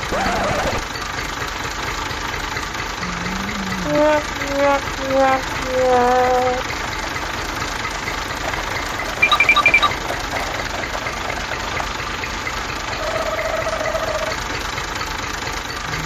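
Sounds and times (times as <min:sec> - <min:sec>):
steady electronic tone: 0:03.0 - 0:04.0, 0:09.2 - 0:10.0
short high beeps: 0:09.2 - 0:10.0.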